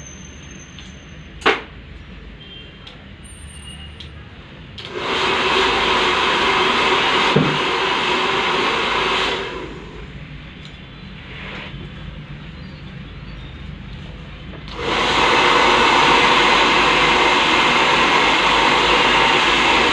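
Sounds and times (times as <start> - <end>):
blow dryer running: 4.8 - 10.2, 14.6 - 19.9.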